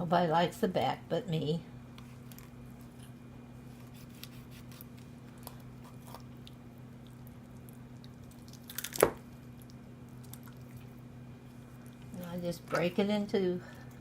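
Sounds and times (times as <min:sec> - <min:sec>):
steady low hum: 0:00.0 - 0:14.0
knife cutting through raw chicken: 0:03.8 - 0:06.2.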